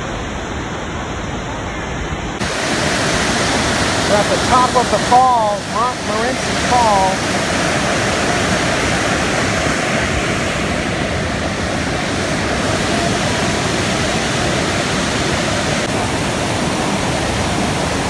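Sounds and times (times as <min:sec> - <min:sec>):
waterfall rushing: 0:02.4 - 0:18.0.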